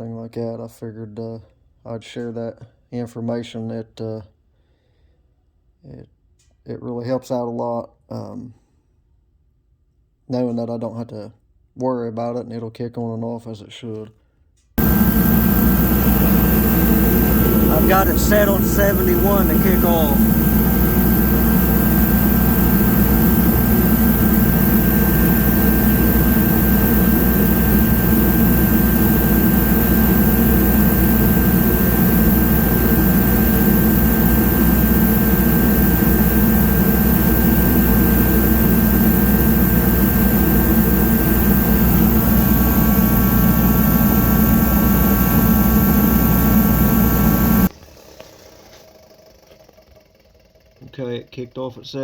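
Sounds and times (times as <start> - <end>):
faint steady whine: 14.8 - 47.7
heater blower and burner running: 14.8 - 47.8.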